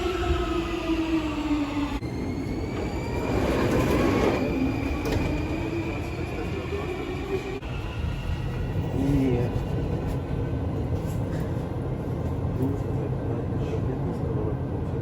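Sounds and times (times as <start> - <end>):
traction motors whining: 0.0 - 9.0
train wheels rumbling on track: 0.0 - 15.0.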